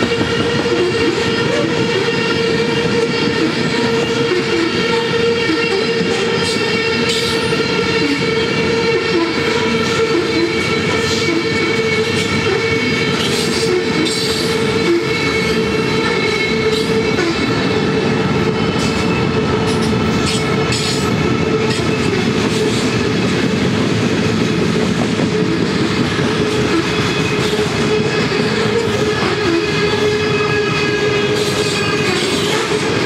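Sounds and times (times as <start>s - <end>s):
high-pitched wheel squeal: 0.0s - 17.7s
freight train wheels clicking: 9.4s - 33.0s.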